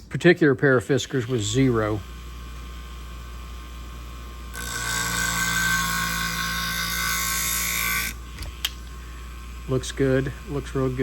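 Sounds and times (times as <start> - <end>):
sharpening machine humming: 0.9 - 11.0
blade grinding on wheel: 1.0 - 2.2.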